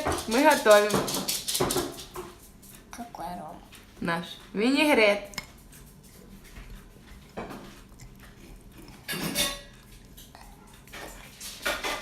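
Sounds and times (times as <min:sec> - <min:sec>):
utensils clattering against dishes: 0:00.0 - 0:02.4, 0:08.8 - 0:12.0.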